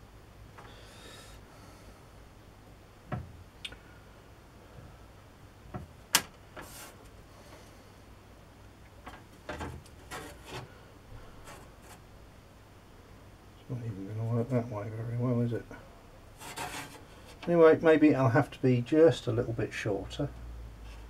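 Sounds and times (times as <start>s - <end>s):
metal scraping on workbench: 9.5s - 12.0s, 16.4s - 17.1s.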